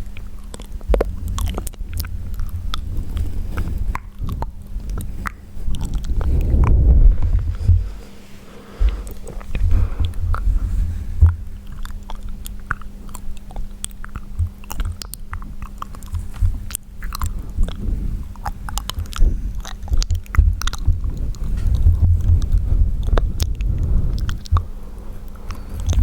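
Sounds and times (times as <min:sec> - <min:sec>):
lip smacks and tongue clicks: 0:00.0 - 0:07.6, 0:11.2 - 0:26.0
low thumps on microphone: 0:05.7 - 0:11.7, 0:19.0 - 0:24.7.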